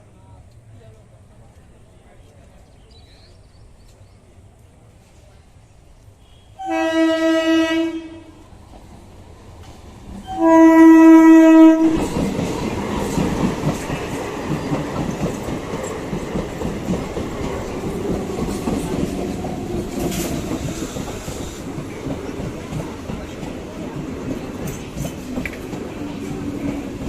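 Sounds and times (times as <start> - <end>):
train passing at speed: 0.0 - 27.0
train horn blast: 6.2 - 8.4, 10.2 - 12.1.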